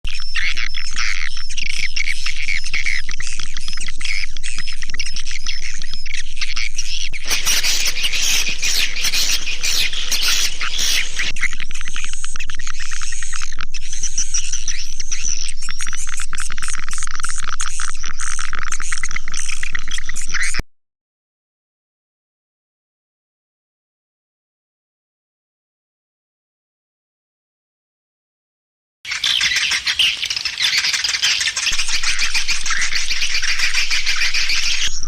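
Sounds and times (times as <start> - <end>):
swiftlet twittering chirps: 0.2 - 15.9, 29.1 - 35.0
steady low hum: 7.1 - 16.1, 31.8 - 35.0.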